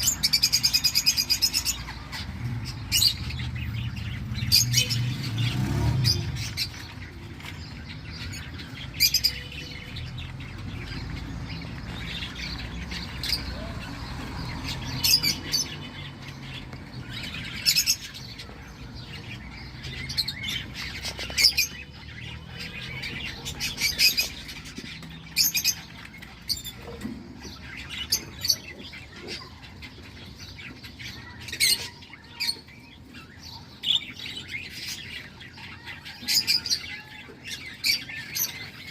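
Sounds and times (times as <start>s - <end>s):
cockatiels chirping and squawking: 0.0s - 38.9s.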